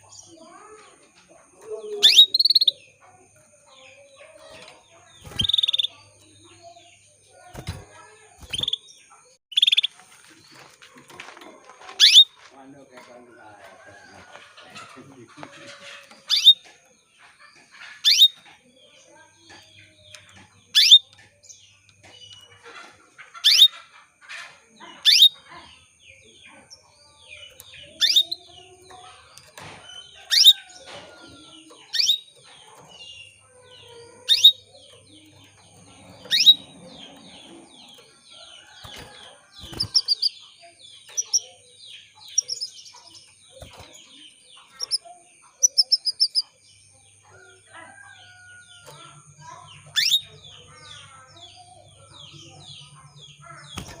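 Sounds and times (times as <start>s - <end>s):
other birds chirping: 0.0s - 54.0s
canary call notes: 1.9s - 2.8s.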